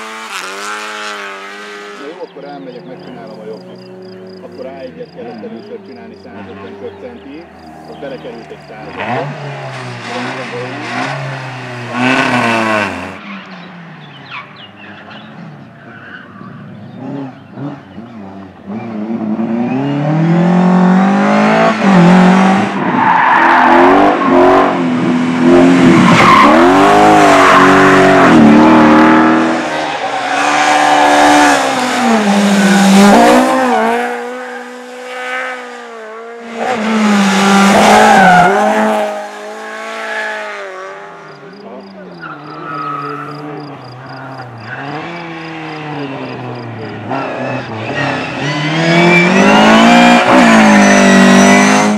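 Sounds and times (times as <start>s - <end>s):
rally car engine revving: 0.0s - 51.9s.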